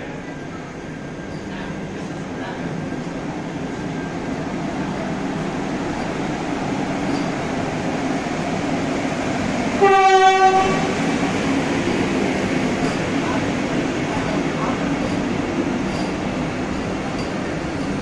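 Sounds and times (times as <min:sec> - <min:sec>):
train rolling with rumble: 0:00.0 - 0:18.0
short train horn blast: 0:09.8 - 0:11.0.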